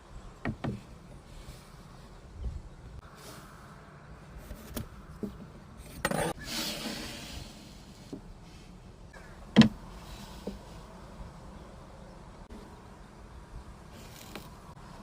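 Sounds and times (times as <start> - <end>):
short scrape: 6.0 - 8.8.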